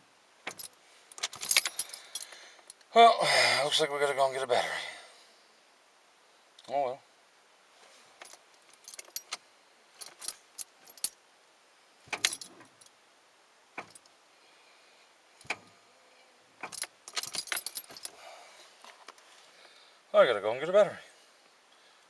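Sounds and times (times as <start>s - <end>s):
keys jangling: 0.5s - 2.8s, 8.2s - 9.4s, 10.0s - 11.2s, 12.1s - 12.9s, 13.8s - 14.1s, 16.6s - 18.2s.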